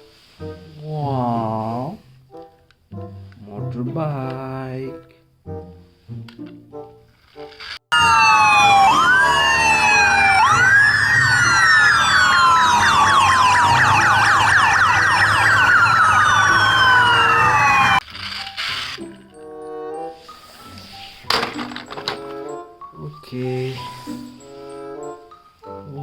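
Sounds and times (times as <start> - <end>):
emergency sirens wailing and yelping: 7.9 - 18.0.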